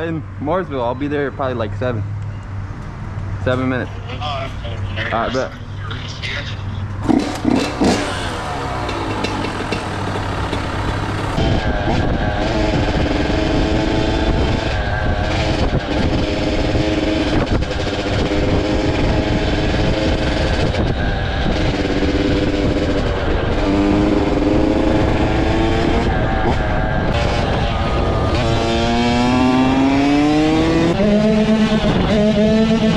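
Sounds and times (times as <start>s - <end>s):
dirt bike engine accelerating: 7.0s - 32.9s
rushing wind noise: 7.0s - 32.9s.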